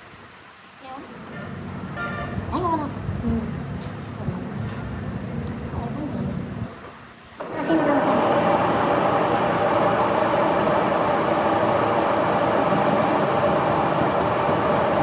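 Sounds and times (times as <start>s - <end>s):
metal lathe running: 7.4s - 15.0s.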